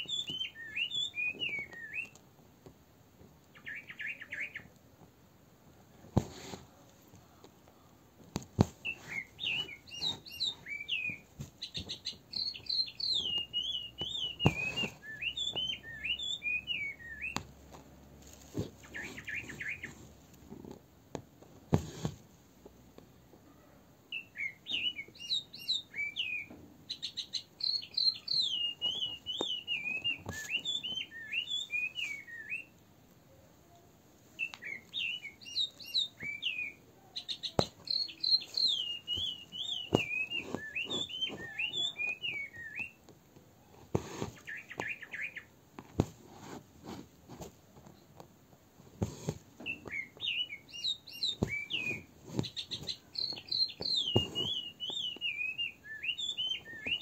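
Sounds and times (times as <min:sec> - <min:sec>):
bird singing: 0:00.0 - 0:02.2, 0:03.5 - 0:04.8, 0:08.8 - 0:17.4, 0:18.8 - 0:20.0, 0:24.1 - 0:32.7, 0:34.4 - 0:43.0, 0:44.4 - 0:45.5, 0:49.6 - 0:57.0.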